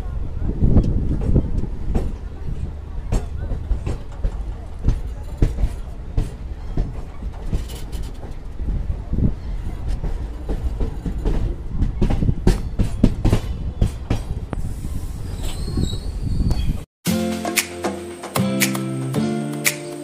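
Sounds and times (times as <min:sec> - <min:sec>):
train rumbling: 0:00.0 - 0:20.0
wheels clacking over rail joints: 0:00.4 - 0:15.8.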